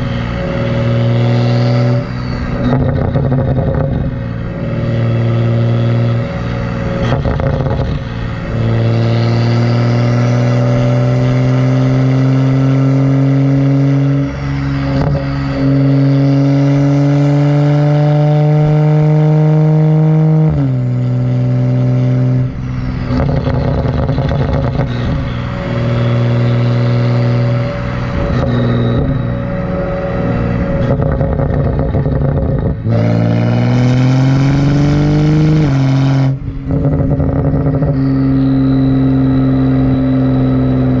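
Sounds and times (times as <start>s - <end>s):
car engine under load: 0.0s - 41.0s.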